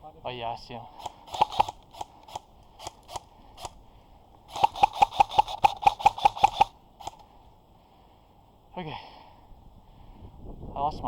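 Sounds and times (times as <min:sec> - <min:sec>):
airsoft gun shots: 0:01.0 - 0:03.8, 0:04.5 - 0:07.2.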